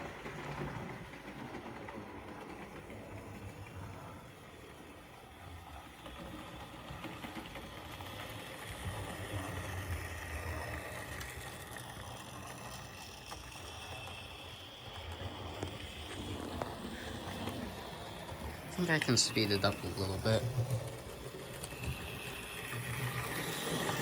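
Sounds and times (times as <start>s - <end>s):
model train motor humming: 0.0s - 24.0s
wheels clicking on rails: 0.0s - 24.0s.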